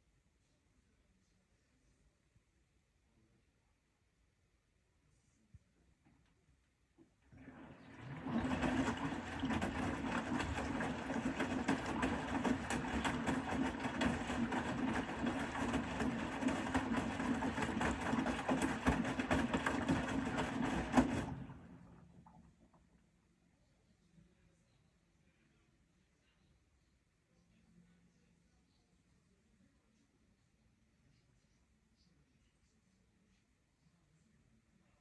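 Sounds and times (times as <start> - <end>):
clatter of tumbling laundry: 7.2 - 22.4
washing machine motor humming: 7.2 - 22.4.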